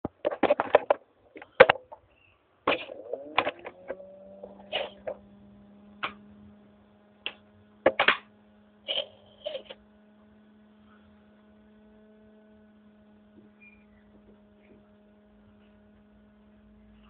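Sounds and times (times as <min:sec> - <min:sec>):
faint electrical hum: 0:00.0 - 0:17.0
handling clicks and knocks: 0:00.1 - 0:02.1, 0:02.7 - 0:05.2.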